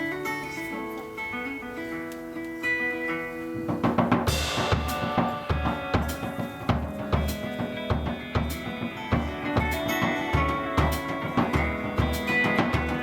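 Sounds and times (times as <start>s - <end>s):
held guitar notes: 0.0s - 13.0s
drum kit beat with cymbals: 3.5s - 13.0s.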